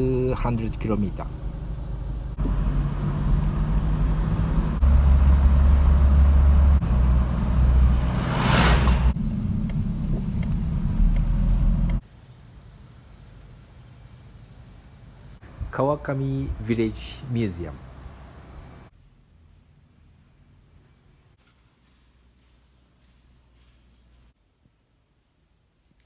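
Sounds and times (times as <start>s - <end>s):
car engine: 0.0s - 12.0s
road noise: 0.0s - 12.0s, 16.5s - 18.9s
crickets chirping: 0.0s - 21.4s
rushing noise: 4.8s - 11.1s.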